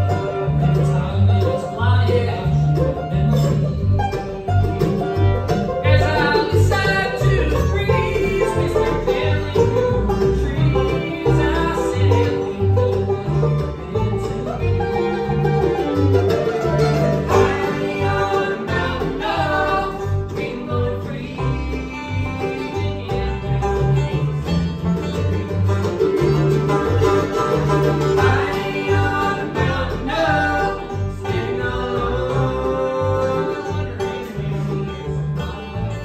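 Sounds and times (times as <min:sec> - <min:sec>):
banjo picking: 0:00.0 - 0:36.0
bass line: 0:00.0 - 0:36.0
guitar picking: 0:00.0 - 0:36.0.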